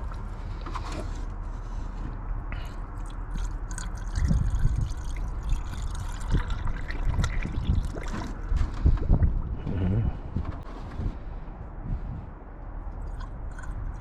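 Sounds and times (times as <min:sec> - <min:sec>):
water pouring trickling and gurgling: 0:03.0 - 0:09.5, 0:13.0 - 0:14.0.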